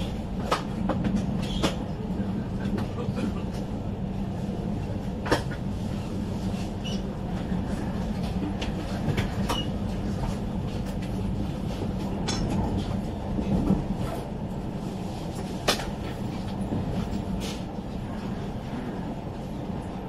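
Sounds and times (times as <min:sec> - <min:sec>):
train running rumble and hum: 0:00.0 - 0:20.0.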